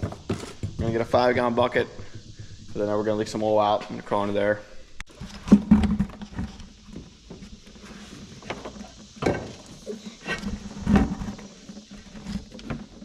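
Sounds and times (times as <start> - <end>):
bucket and tools knocking: 5.2 - 13.0.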